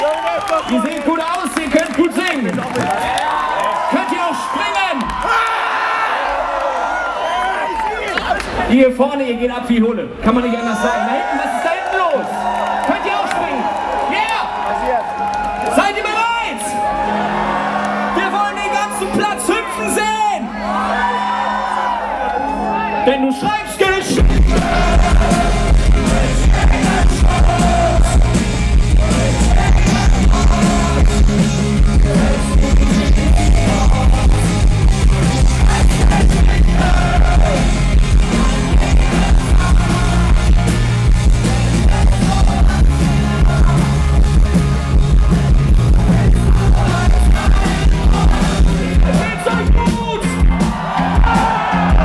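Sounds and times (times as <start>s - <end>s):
rock band playing: 23.7s - 52.0s
person singing: 24.2s - 44.0s, 46.0s - 49.4s.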